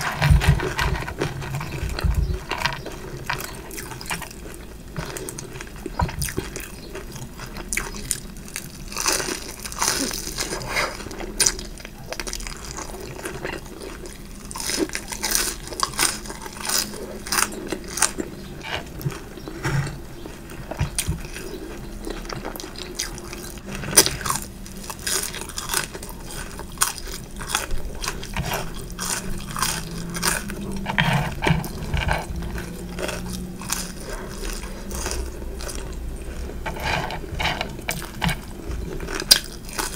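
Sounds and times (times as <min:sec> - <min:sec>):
food crunching: 0:00.0 - 0:39.9
person biting and chewing food: 0:22.1 - 0:39.9.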